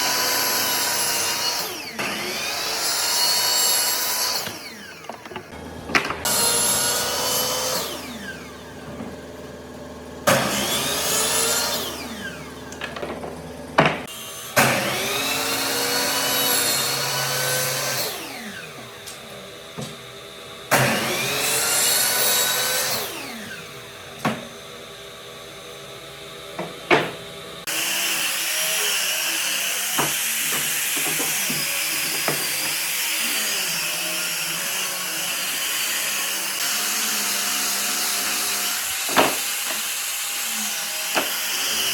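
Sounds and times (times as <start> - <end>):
electric power tool whining: 0.0 - 24.7, 27.6 - 41.9.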